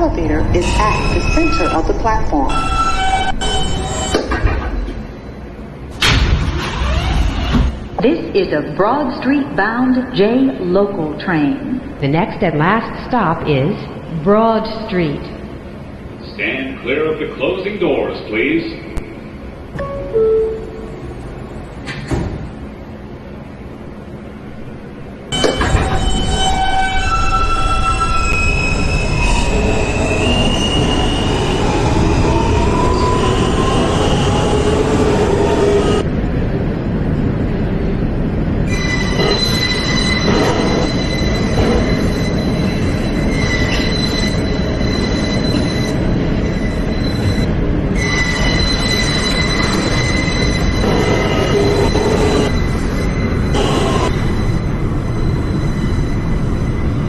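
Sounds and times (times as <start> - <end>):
subway train rumble: 0.0 - 57.0
high-pitched wheel squeal: 38.7 - 57.0.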